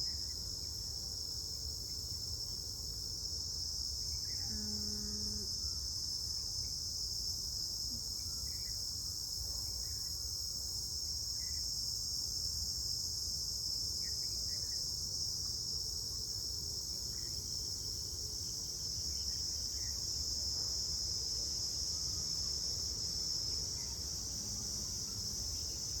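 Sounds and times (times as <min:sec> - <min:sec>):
insects droning: 0:00.0 - 0:12.4, 0:13.4 - 0:26.0.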